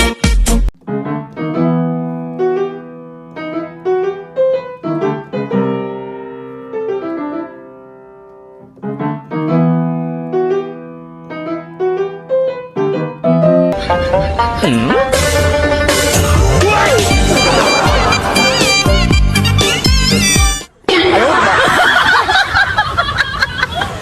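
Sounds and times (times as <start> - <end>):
gentle piano melody: 0.8 - 15.8.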